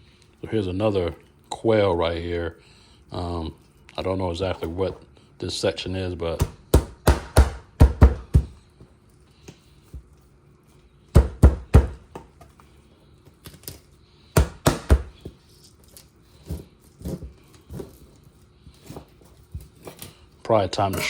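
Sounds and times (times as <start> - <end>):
knife chopping on counter: 6.4 - 8.6, 11.2 - 12.3, 14.4 - 15.2.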